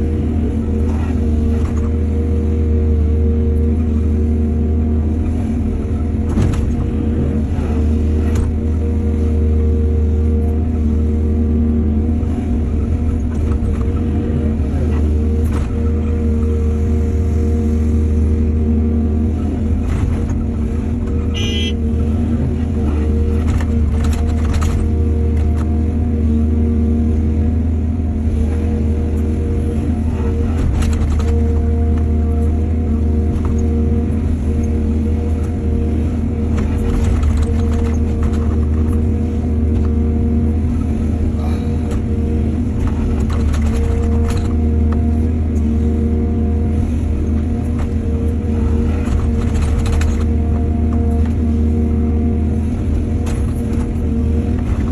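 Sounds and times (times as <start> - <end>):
heavy diesel engines droning: 0.0 - 54.9
knocks and clatter of loading soil: 22.9 - 26.0, 30.1 - 33.8, 36.3 - 40.7, 41.6 - 45.8, 47.4 - 51.5, 52.8 - 54.9.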